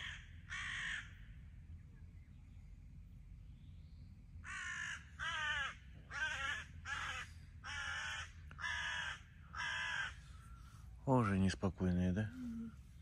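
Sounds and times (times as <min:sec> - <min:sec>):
bird harsh loud calls: 0:00.0 - 0:01.5, 0:04.4 - 0:10.9.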